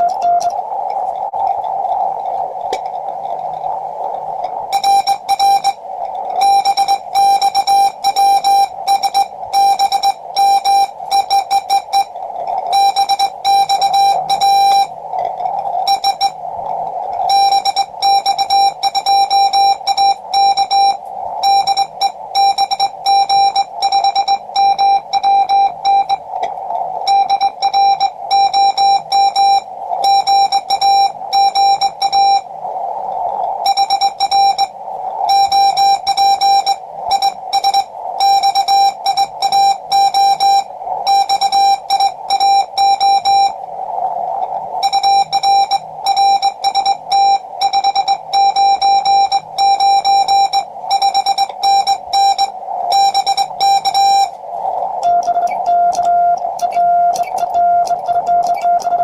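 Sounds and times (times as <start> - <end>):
morse code beeps: 0.0 - 0.6, 4.7 - 5.8, 6.4 - 15.0, 15.8 - 16.4, 17.2 - 26.3, 27.0 - 32.5, 33.6 - 43.6, 44.8 - 59.0
receiver hiss: 0.0 - 59.0.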